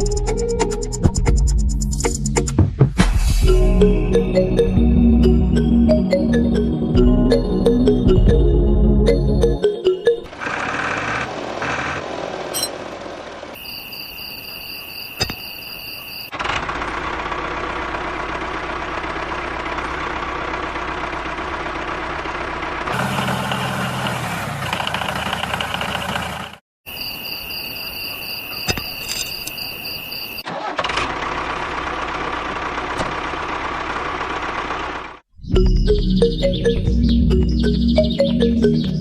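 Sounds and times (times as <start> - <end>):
small tractor engine running: 10.2 - 13.6, 16.3 - 26.6, 30.5 - 35.3.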